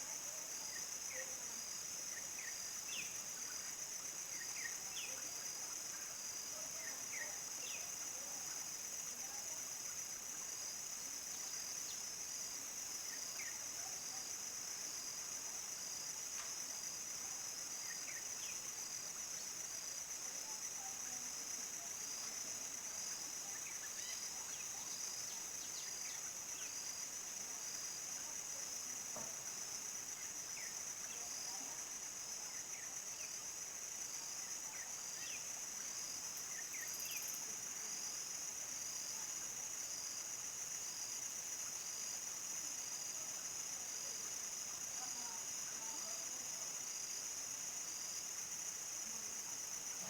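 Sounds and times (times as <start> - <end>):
crickets trilling: 30.0 - 50.0.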